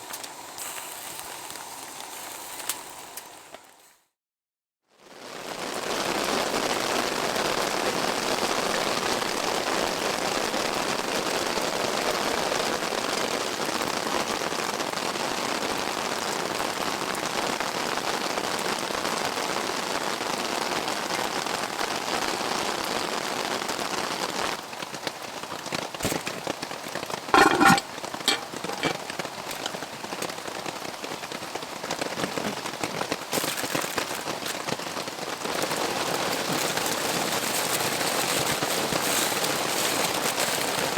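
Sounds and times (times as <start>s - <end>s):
campfire crackling and popping: 0.0s - 3.8s, 25.9s - 40.9s
heavy rain falling: 5.2s - 27.2s, 28.7s - 40.9s.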